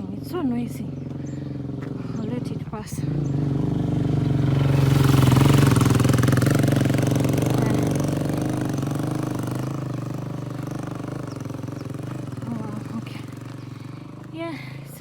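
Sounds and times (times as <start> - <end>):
motorbike engine passing: 0.0 - 15.0.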